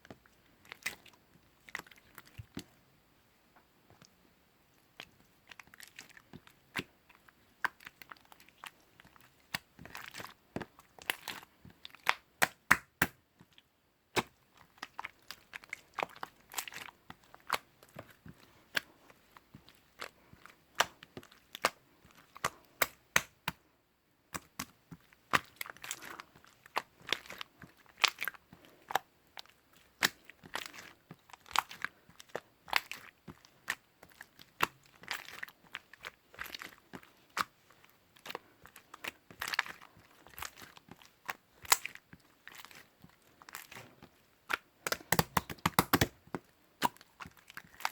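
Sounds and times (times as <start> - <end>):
slime crackling and popping: 11.0 - 13.2, 20.7 - 23.6, 38.9 - 42.9, 44.5 - 47.9.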